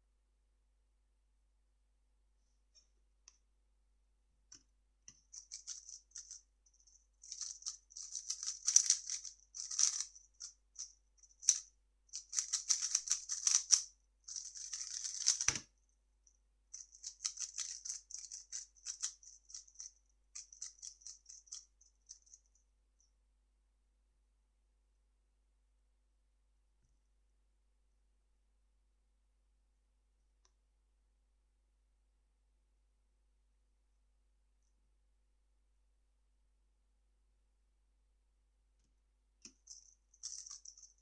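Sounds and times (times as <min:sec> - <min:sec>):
puzzle cube clicking: 0:07.3 - 0:10.1, 0:12.2 - 0:15.7.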